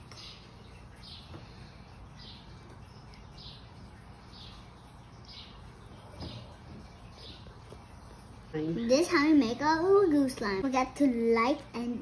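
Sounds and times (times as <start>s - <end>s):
bird chirping: 0.0s - 8.4s
steady low hum: 0.0s - 12.0s.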